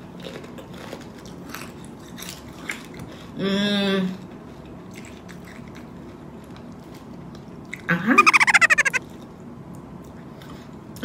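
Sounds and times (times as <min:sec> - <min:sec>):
person humming: 0:08.1 - 0:09.0.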